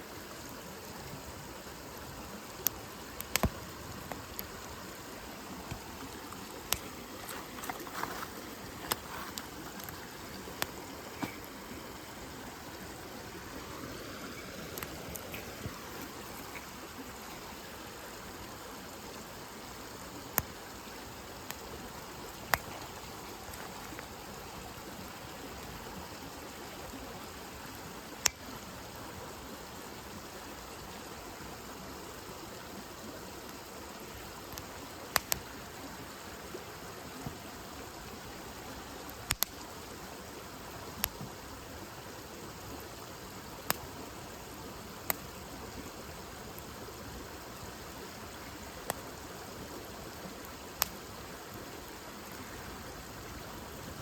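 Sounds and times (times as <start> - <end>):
campfire flames hissing: 0.0 - 54.0
burning wood popping: 5.7 - 11.6.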